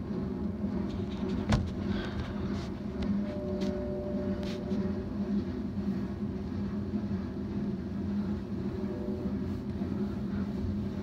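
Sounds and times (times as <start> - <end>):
low pulsing hum: 0.0 - 11.0
train passing rumble: 0.0 - 11.0.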